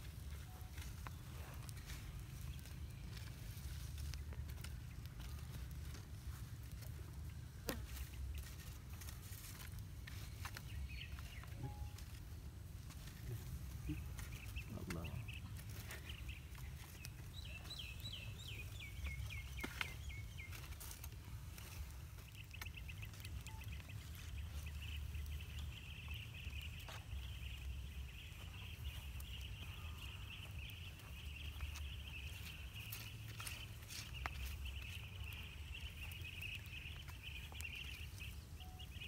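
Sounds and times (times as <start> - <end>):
bird chirping: 7.8 - 39.0
high bird trill: 22.5 - 39.0.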